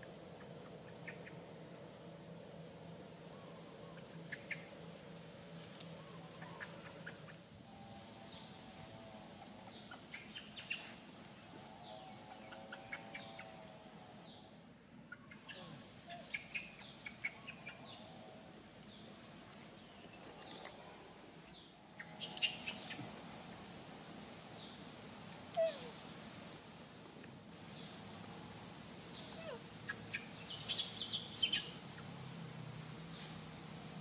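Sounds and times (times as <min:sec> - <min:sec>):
birds chirping: 0:08.2 - 0:23.3.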